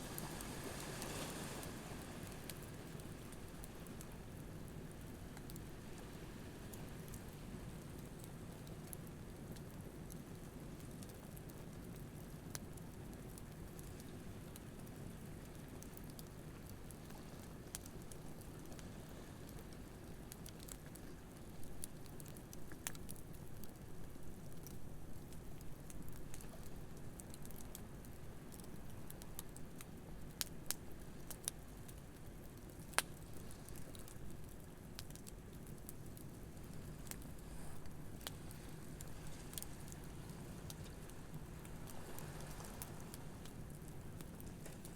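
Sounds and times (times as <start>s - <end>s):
ocean waves: 0.0s - 2.7s, 41.6s - 43.4s
campfire crackling and popping: 19.5s - 44.9s.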